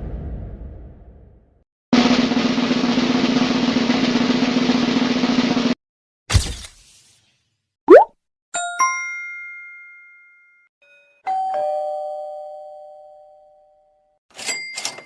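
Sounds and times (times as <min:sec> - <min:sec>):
two-note doorbell ding-dong: 0:08.6 - 0:14.0.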